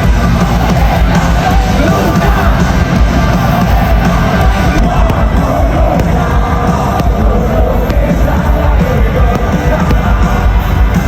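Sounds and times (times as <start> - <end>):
crowd noise: 0.0 - 11.0
live rock band music: 0.0 - 11.0
person singing: 4.7 - 11.0.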